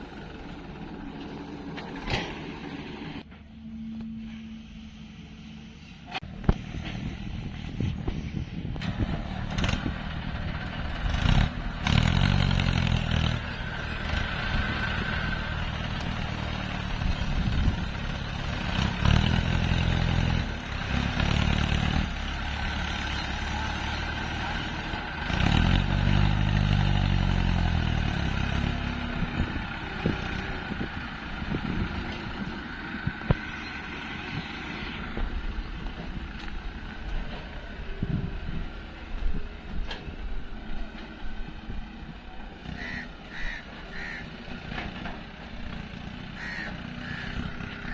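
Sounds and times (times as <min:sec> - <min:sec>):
machinery clanks and clatter: 0:00.0 - 0:04.6, 0:34.9 - 0:42.5, 0:44.5 - 0:46.2
diesel engines running: 0:00.0 - 0:47.9.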